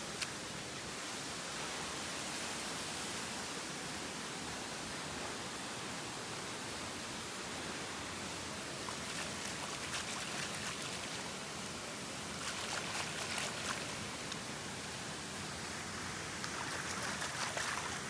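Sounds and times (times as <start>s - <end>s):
sharp splashing ticks: 8.9s - 11.4s, 12.4s - 14.4s, 16.4s - 18.0s.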